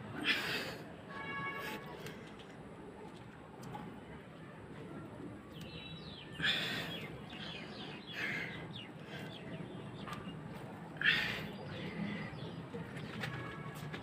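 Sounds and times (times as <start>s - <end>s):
low background noise: 0.0s - 14.0s
birds chirping: 5.5s - 13.5s.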